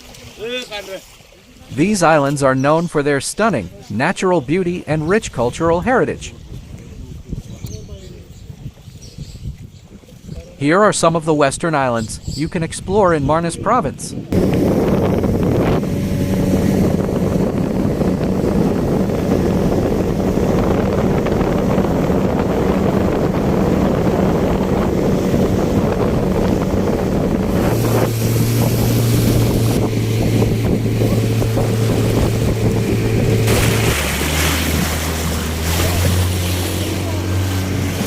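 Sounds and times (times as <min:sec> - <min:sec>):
water rushing past hull: 0:00.0 - 0:38.0
wind buffeting microphone: 0:05.6 - 0:10.6, 0:12.0 - 0:38.0
motorboat engine running: 0:14.2 - 0:38.0.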